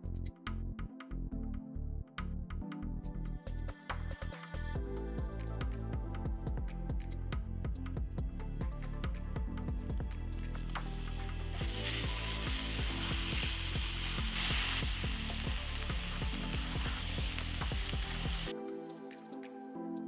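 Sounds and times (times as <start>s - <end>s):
garlic sizzling in a frying pan: 10.4s - 18.5s
spatula stirring in pan: 10.6s - 18.5s.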